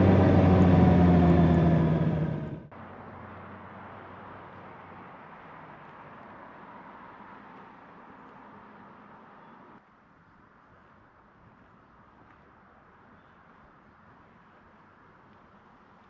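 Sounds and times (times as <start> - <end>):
motorcycle engine running: 0.0 - 2.7
road and wind noise hiss: 0.0 - 16.0.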